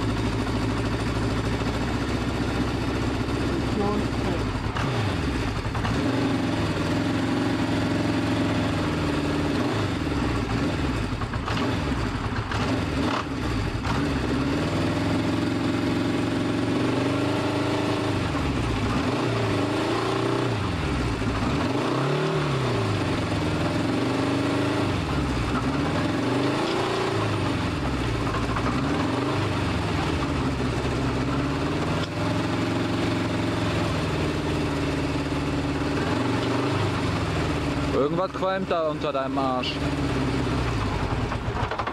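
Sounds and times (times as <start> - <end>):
motorcycle engine idling and revving: 0.0 - 41.9.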